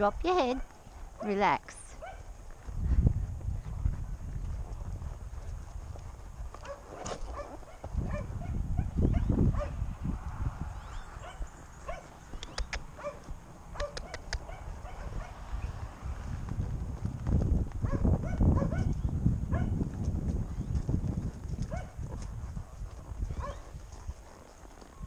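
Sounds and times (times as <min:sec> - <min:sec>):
dog barking: 0:02.0 - 0:02.3, 0:06.6 - 0:09.8, 0:11.2 - 0:12.2, 0:13.0 - 0:15.5, 0:17.8 - 0:18.9, 0:19.5 - 0:19.8, 0:21.7 - 0:22.0, 0:23.4 - 0:23.7
wind buffeting microphone: 0:02.0 - 0:25.0.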